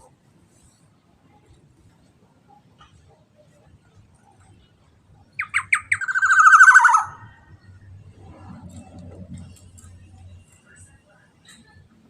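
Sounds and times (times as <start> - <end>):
oriole calling: 5.4 - 7.5.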